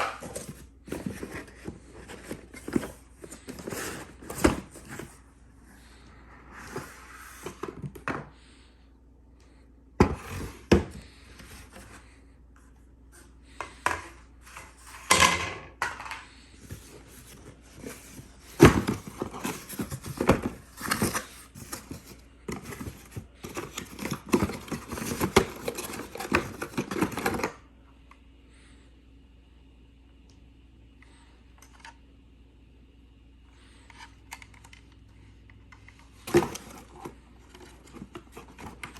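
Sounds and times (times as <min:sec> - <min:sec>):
packaging rustling and scraping: 0:00.0 - 0:05.9, 0:16.3 - 0:27.5, 0:36.2 - 0:38.9.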